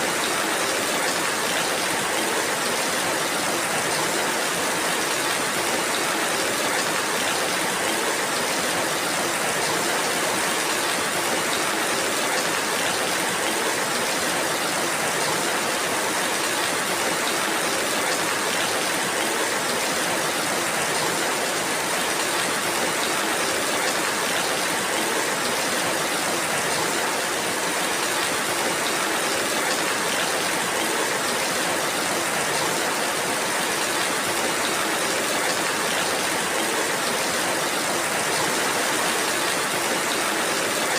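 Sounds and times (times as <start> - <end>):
steady rainfall hiss: 0.0 - 40.9.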